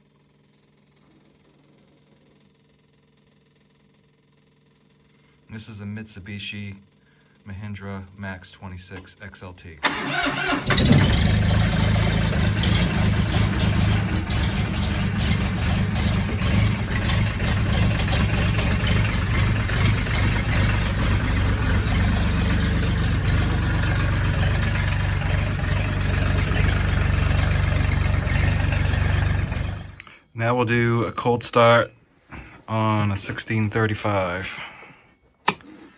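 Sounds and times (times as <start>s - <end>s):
tractor diesel engine idling: 9.8s - 30.0s.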